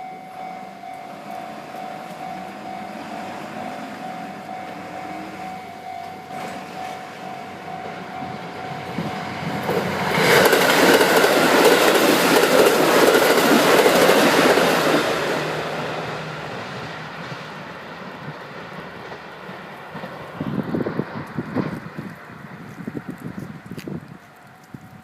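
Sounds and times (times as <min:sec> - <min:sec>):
train passing at speed: 0:00.0 - 0:23.3
wheel clatter on rails: 0:09.6 - 0:15.0.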